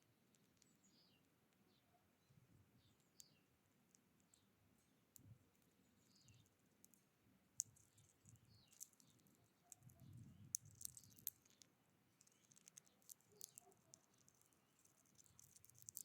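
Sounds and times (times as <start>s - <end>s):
faint sharp clicks and taps: 5.1s - 16.0s
soft high bird calls: 7.8s - 14.2s.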